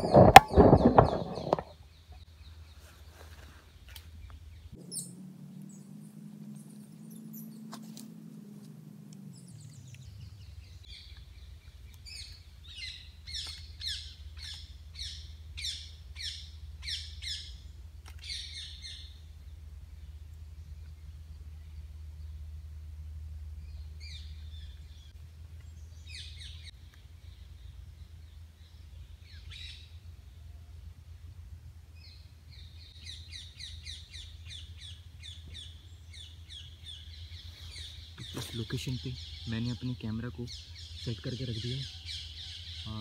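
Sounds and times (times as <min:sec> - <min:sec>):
rustling and knocking of camera: 0:00.0 - 0:01.7
faint low hum: 0:00.0 - 0:43.0.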